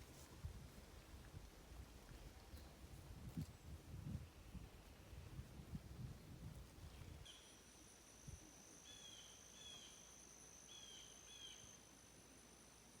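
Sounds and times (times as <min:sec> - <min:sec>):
high insect trill: 0:07.3 - 0:13.0
bird chirping: 0:08.8 - 0:11.8.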